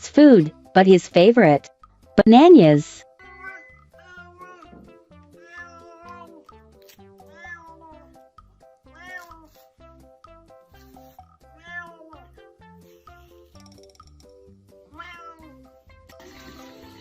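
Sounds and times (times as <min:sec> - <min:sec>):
background music with plucked beat: 0:03.1 - 0:17.0
cat meowing: 0:03.2 - 0:06.4, 0:07.2 - 0:08.1, 0:08.9 - 0:09.7, 0:11.6 - 0:12.4, 0:14.9 - 0:15.6.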